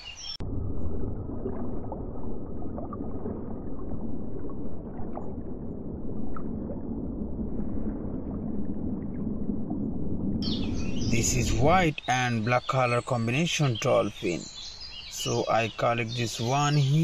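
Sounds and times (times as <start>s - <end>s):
underwater rushing gurgling water: 0.4s - 11.9s.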